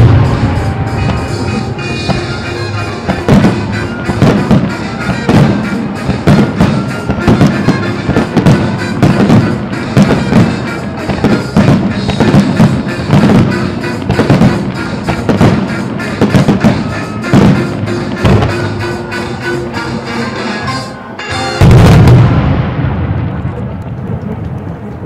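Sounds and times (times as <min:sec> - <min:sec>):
fireworks bangs: 0:00.0 - 0:20.0, 0:21.5 - 0:25.0
loud music: 0:00.0 - 0:22.6.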